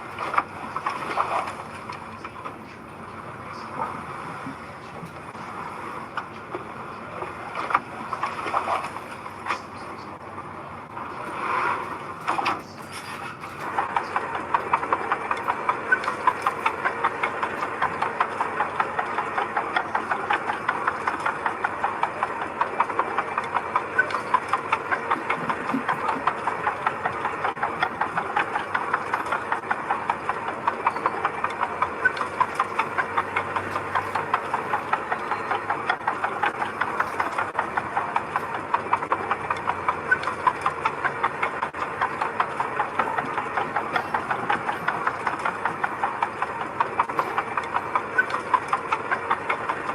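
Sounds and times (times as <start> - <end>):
heavy machine engine running: 0.0 - 49.9
rapid clattering knocks: 10.8 - 49.9.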